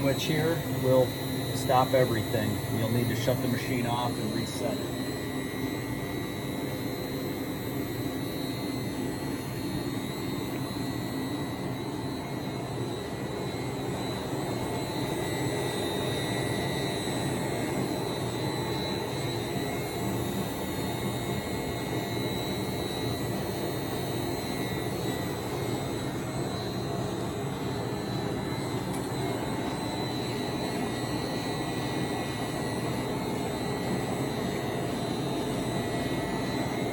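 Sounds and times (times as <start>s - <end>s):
lathe running with high tone: 0.0s - 36.9s.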